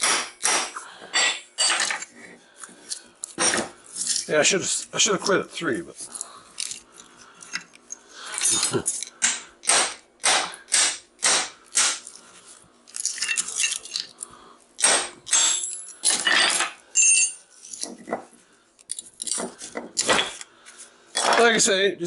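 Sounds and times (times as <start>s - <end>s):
hammer striking steel core: 9.2s - 12.0s, 14.8s - 17.4s
metallic ring: 15.3s - 17.5s.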